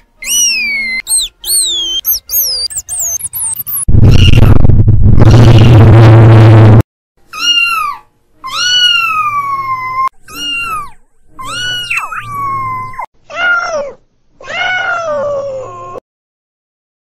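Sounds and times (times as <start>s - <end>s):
kitten meowing: 0.2s - 3.0s.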